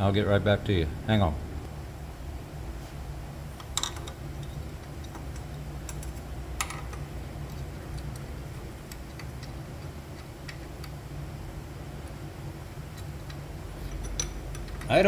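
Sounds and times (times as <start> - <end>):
steady low hum: 0.0 - 15.0
tools clicking and tapping: 12.9 - 15.0.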